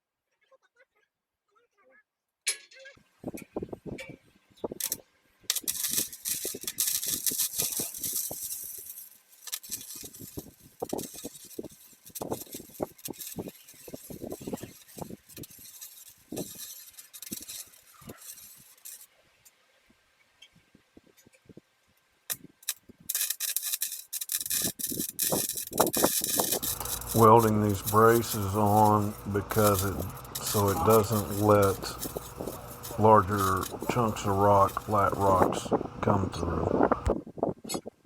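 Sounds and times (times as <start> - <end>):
harsh hissing crackle: 23.2 - 37.2.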